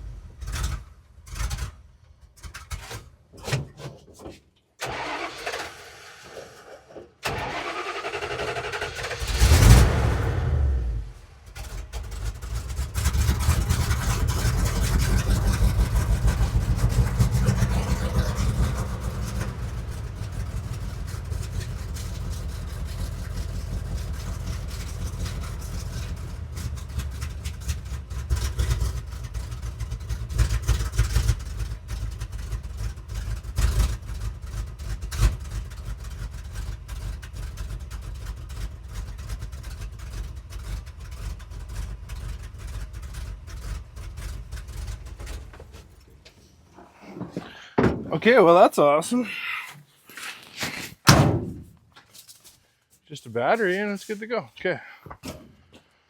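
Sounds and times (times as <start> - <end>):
engine idling: 4.9 - 46.3
engine throttle blips: 7.2 - 32.1.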